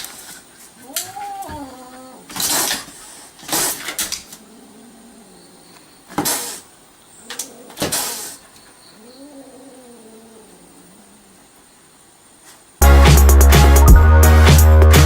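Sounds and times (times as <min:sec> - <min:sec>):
cat hissing: 0:00.2 - 0:05.4, 0:06.1 - 0:11.4
cat yowling: 0:00.8 - 0:02.4
cat growling: 0:00.8 - 0:05.6, 0:07.2 - 0:08.4, 0:09.0 - 0:11.5.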